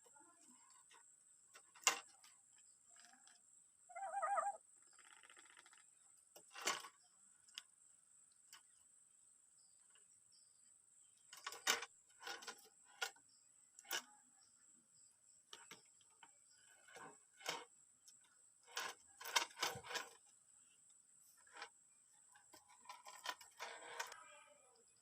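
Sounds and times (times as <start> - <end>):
parrot wavering call: 3.9 - 4.6
buzzy rattle: 4.9 - 7.6, 11.3 - 14.2, 15.5 - 20.4, 21.2 - 24.3.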